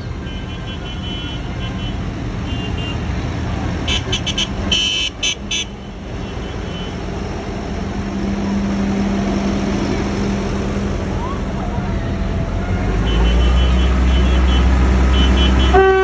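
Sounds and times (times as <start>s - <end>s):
tractor engines running: 0.0s - 16.0s
short horn toots: 13.0s - 16.0s.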